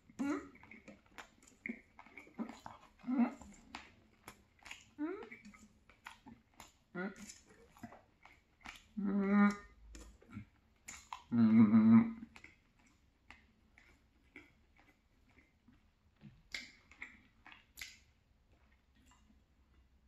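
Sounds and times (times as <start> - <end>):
man chewing with mouth clicks: 0.0 - 20.0
man humming mmm: 11.3 - 12.2.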